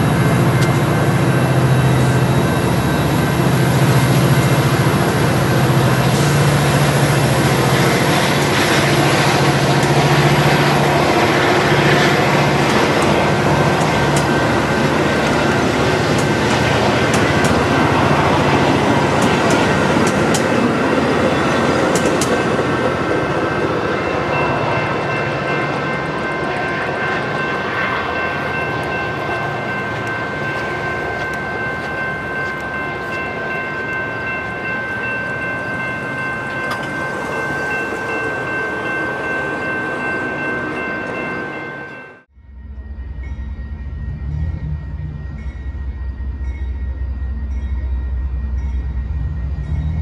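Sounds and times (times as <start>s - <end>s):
train rolling past: 0.0s - 50.0s
wheels clicking over rails: 8.2s - 23.8s
high ringing tone: 24.0s - 50.0s.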